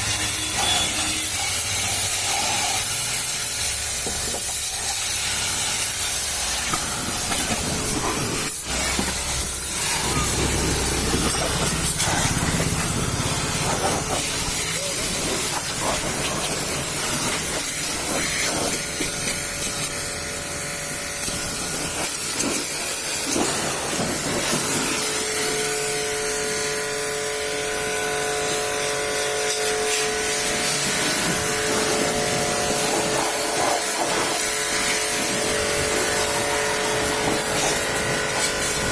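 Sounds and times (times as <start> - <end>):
pressure washer spraying: 0.0 - 38.9.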